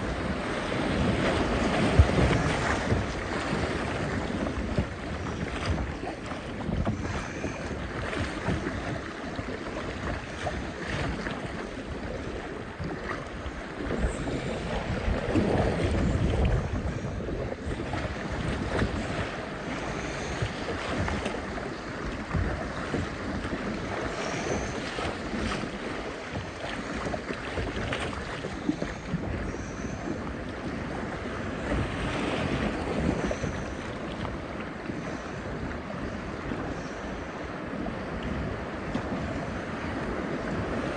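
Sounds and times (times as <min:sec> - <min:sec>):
paddle splashes: 0:00.0 - 0:40.9
wind on microphone: 0:00.0 - 0:40.9.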